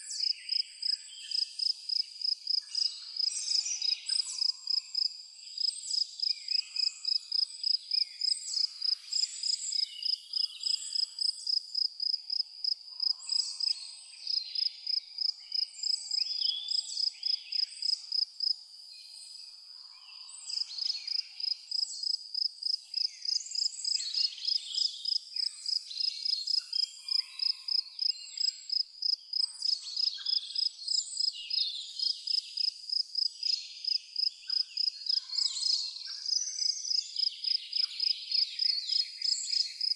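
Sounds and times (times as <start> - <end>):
cricket chirping: 0.0 - 39.9
birds calling and singing: 22.9 - 32.6, 33.3 - 39.9.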